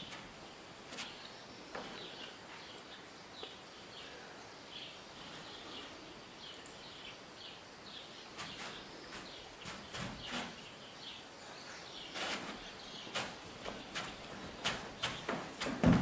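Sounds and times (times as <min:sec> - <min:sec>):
feet scuffing on floor: 0:12.1 - 0:16.0.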